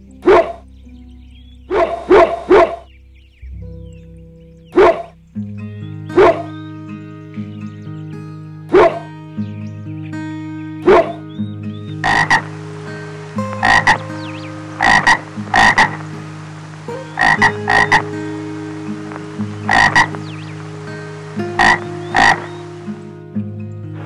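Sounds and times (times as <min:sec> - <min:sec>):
frog croaking: 0:00.2 - 0:00.6, 0:01.7 - 0:02.9, 0:04.8 - 0:05.2, 0:06.2 - 0:06.5, 0:08.7 - 0:09.1, 0:10.8 - 0:11.2, 0:11.9 - 0:23.2.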